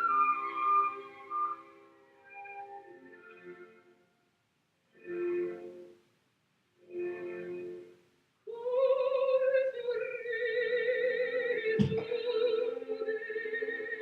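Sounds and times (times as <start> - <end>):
short knock: 11.8 - 12.1.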